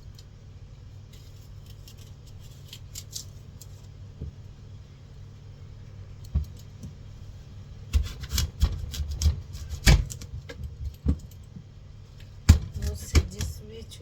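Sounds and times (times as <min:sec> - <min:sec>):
knife cutting fruit on board: 0:07.9 - 0:10.2.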